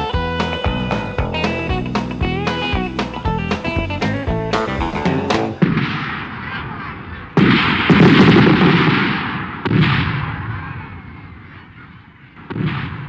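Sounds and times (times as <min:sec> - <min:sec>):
fireworks booming and crackling: 0:01.3 - 0:10.2.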